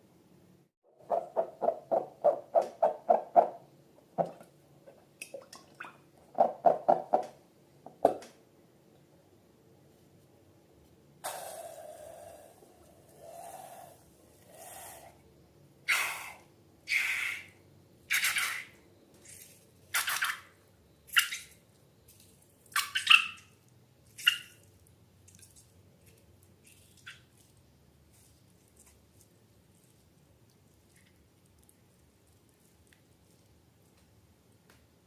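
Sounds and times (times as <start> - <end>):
slime squelching: 22.1 - 34.2.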